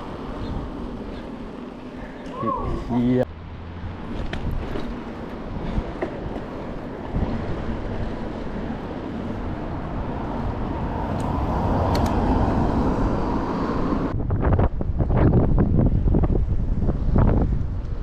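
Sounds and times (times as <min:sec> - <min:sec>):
wind rushing over microphone: 0:02.5 - 0:18.0.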